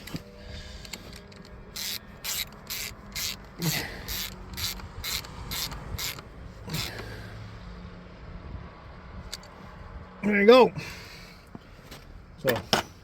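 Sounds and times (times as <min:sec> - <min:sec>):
ratchet wrench clicking: 0:00.8 - 0:07.1.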